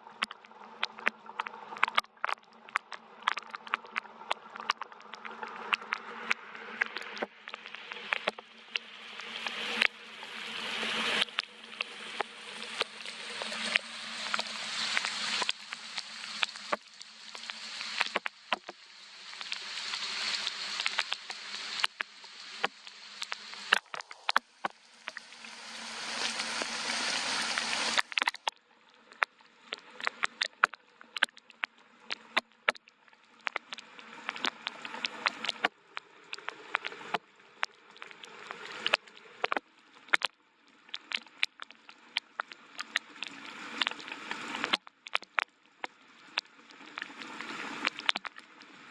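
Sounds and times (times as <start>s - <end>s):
raindrops ticking and splatting: 0.2s - 48.9s
rain hissing: 9.0s - 28.3s.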